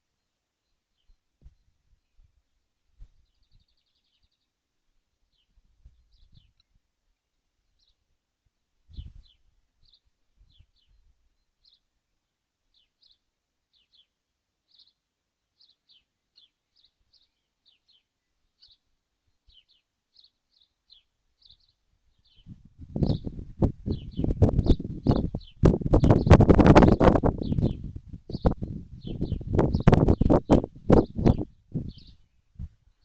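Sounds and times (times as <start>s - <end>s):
bird chirping: 0.0s - 4.6s, 5.3s - 6.8s, 7.7s - 8.0s, 8.9s - 12.0s, 12.7s - 33.0s.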